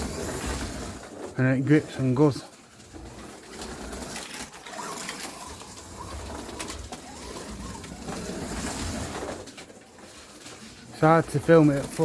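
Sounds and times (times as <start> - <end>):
slot car motor whine: 4.5 - 9.4.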